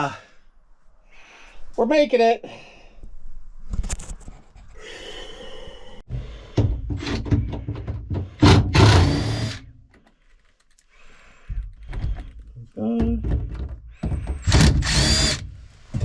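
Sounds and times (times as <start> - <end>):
knocks and clunks of tools: 6.5 - 9.2, 11.4 - 14.8.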